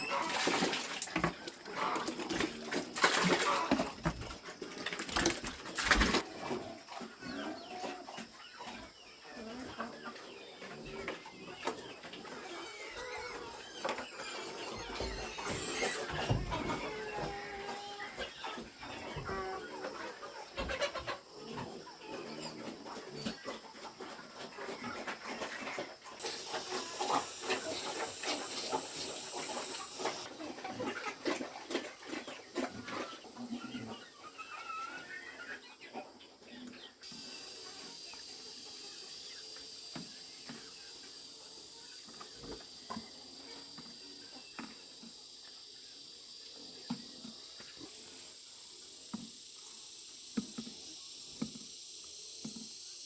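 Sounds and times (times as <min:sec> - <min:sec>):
pigs grunting: 0:00.0 - 0:35.6
chickens clucking: 0:00.0 - 0:53.0
steady high hiss: 0:26.1 - 0:30.3, 0:37.0 - 0:53.0.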